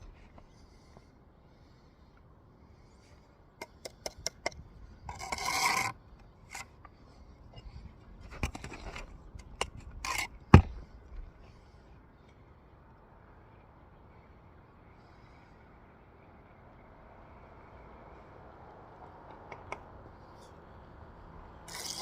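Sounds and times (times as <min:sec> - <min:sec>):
trowel scraping mortar: 0:05.0 - 0:06.8, 0:07.6 - 0:10.8, 0:21.7 - 0:22.0.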